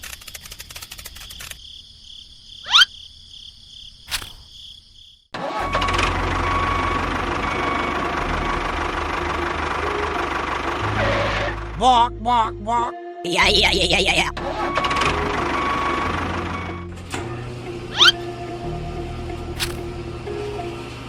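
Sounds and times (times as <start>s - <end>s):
engine running: 5.4s - 12.5s, 13.4s - 21.0s
low hum: 5.8s - 11.8s.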